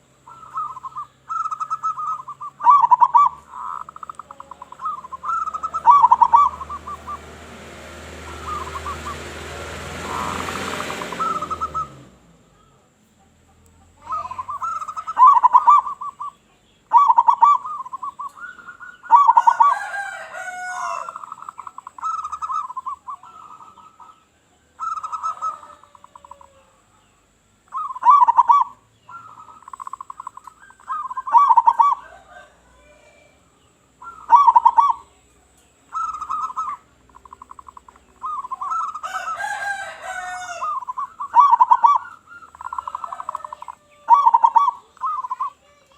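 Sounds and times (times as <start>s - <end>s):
dove cooing: 0.0s - 12.7s, 13.5s - 27.0s, 27.7s - 45.9s
broad rushing noise: 4.8s - 12.3s.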